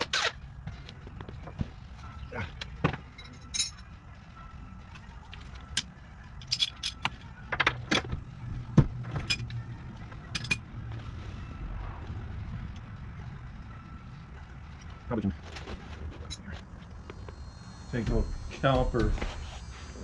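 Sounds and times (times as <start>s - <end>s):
low steady hum: 0.1s - 20.0s
metal hand tools clinking: 3.2s - 3.9s, 6.4s - 7.1s.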